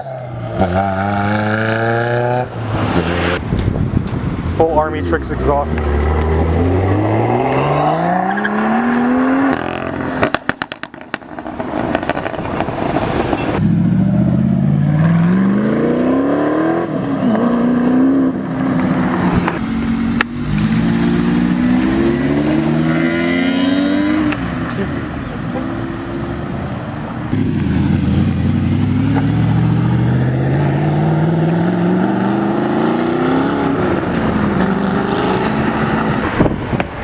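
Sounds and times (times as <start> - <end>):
car engine accelerating hard: 5.2 - 11.6, 13.6 - 26.7, 27.3 - 36.6
exhaust pops and crackles: 10.2 - 13.6.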